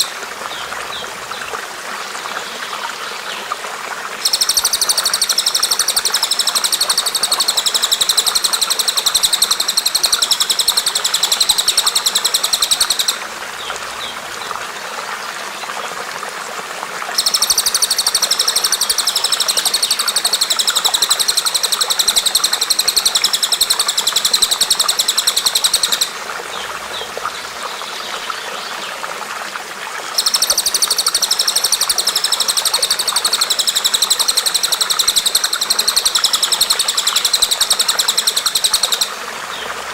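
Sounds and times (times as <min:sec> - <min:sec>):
running water hiss: 0:00.0 - 0:39.9
songbird high-pitched trill: 0:04.2 - 0:13.2, 0:17.2 - 0:26.1, 0:30.2 - 0:39.1.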